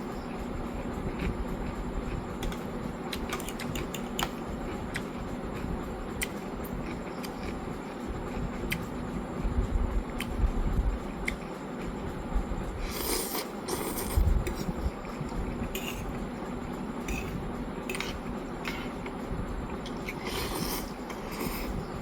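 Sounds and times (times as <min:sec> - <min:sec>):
person chewing: 0:12.8 - 0:14.8, 0:19.9 - 0:21.8
slurping: 0:12.8 - 0:14.8, 0:20.0 - 0:21.8.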